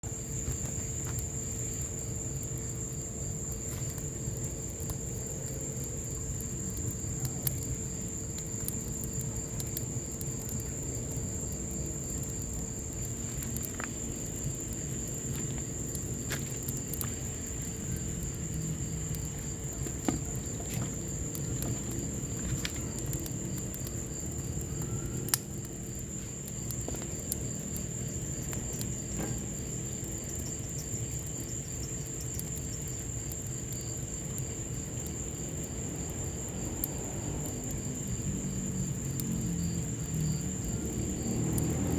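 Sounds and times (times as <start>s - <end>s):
wood fire crackling and popping: 0.0s - 41.9s
rain falling: 35.2s - 41.9s.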